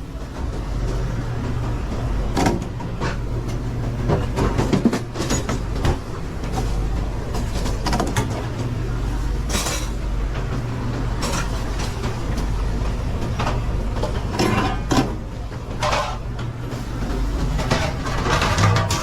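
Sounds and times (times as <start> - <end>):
ventilation hum: 0.0 - 19.0
pans and utensils clattering: 9.4 - 10.0, 11.2 - 12.0, 14.3 - 19.0.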